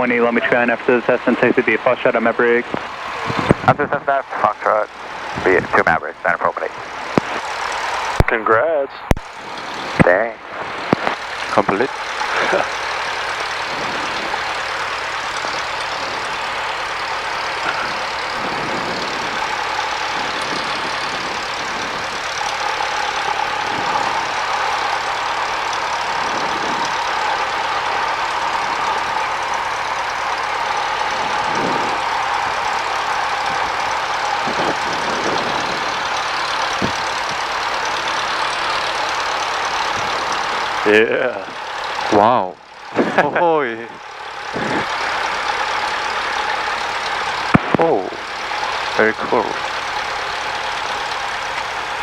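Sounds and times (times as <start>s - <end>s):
piston engine idling: 0.0s - 52.0s.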